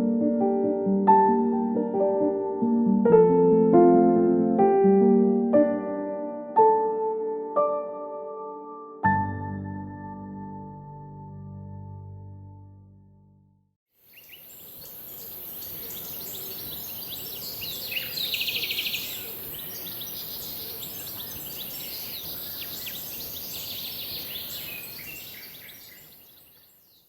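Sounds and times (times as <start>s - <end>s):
steady high hiss: 14.0s - 25.7s
small birds chirping and trilling: 14.0s - 27.0s
loud rapid bird trill: 14.1s - 27.0s.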